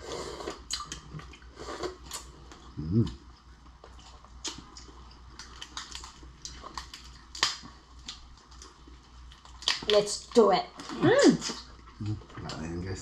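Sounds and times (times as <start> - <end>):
lobster shell cracking: 4.3 - 12.7.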